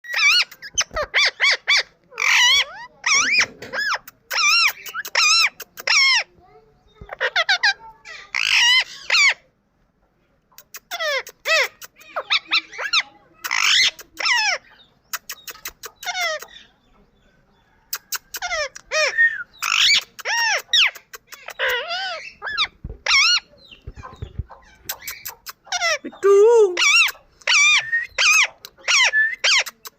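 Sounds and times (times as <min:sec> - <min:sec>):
parrot calling: 0:00.1 - 0:06.3, 0:07.1 - 0:09.4, 0:10.7 - 0:16.7, 0:17.9 - 0:29.9
parrot squawk: 0:00.1 - 0:06.3, 0:07.1 - 0:09.4, 0:10.8 - 0:14.7, 0:15.3 - 0:16.6, 0:18.0 - 0:23.5, 0:24.5 - 0:26.0, 0:26.7 - 0:29.9
parrot whistling and squawking: 0:18.3 - 0:23.5, 0:24.6 - 0:29.9.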